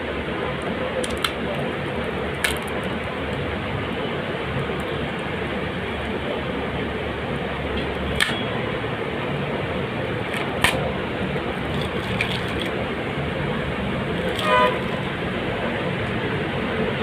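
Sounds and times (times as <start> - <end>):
background traffic noise: 0.0 - 17.0
vehicle horn toot: 14.4 - 15.0.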